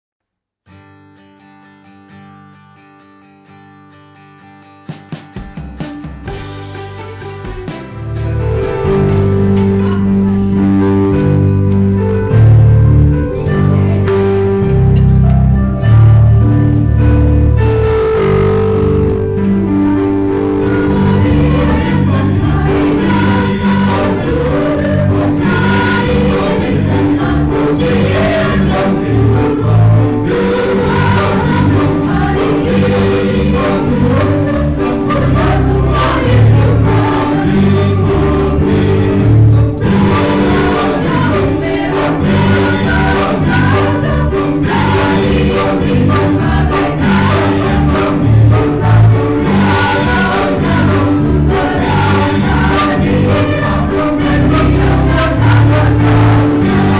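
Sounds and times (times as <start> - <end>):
choir singing a hymn: 17.3 - 56.9.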